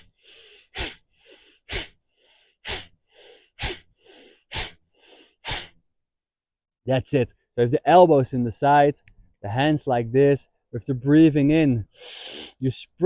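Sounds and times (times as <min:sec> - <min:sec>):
forceful nasal exhalations: 0:00.0 - 0:05.8, 0:11.8 - 0:12.6
quick inhalations: 0:00.0 - 0:05.8, 0:11.8 - 0:12.6.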